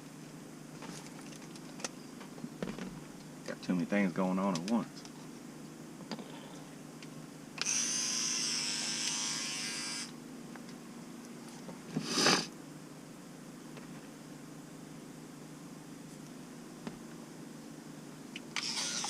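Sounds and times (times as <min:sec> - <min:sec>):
electric toothbrush buzzing: 0:07.6 - 0:10.2, 0:12.0 - 0:12.5, 0:18.6 - 0:19.0.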